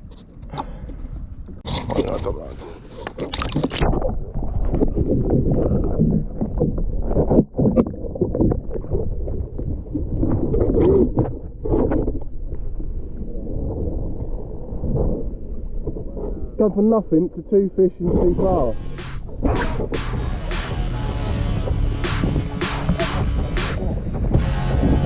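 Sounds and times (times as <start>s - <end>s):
wind rumble on microphone: 3.6s - 16.6s.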